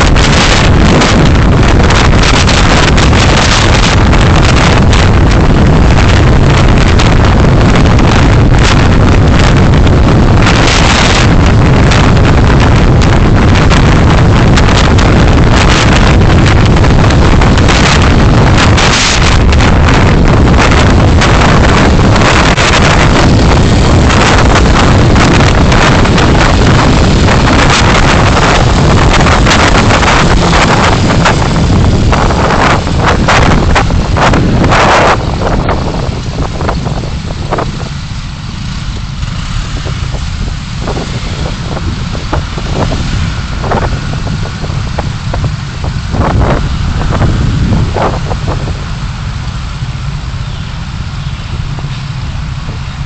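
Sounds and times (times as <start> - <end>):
car road and wind noise: 0.0 - 53.0.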